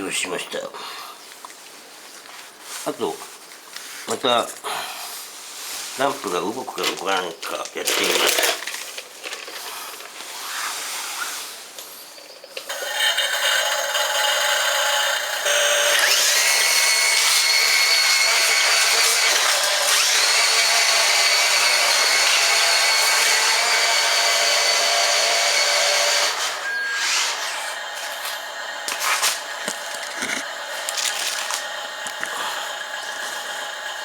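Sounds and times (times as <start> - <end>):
small electric motor whining: 12.7 - 34.0.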